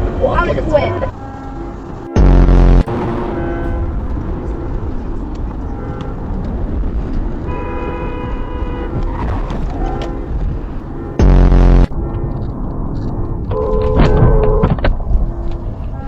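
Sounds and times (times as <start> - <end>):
road and engine rumble: 0.0 - 16.0
car horns honking: 0.4 - 11.9.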